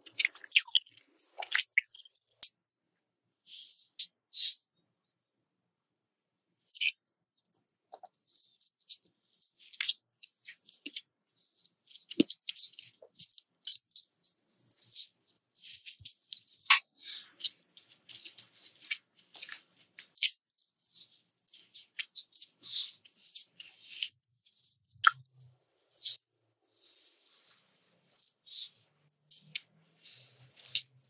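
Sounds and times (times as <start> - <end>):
person chewing crunchy food: 0.0 - 2.7, 6.7 - 31.0.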